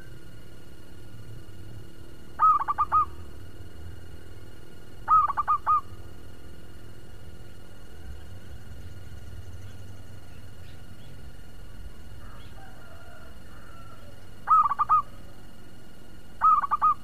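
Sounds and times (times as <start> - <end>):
faint chirps: 0.0 - 17.0
low steady rumble: 0.0 - 17.0
bird calling quick notes: 2.4 - 3.2, 5.1 - 5.9, 14.4 - 15.2, 16.4 - 17.0.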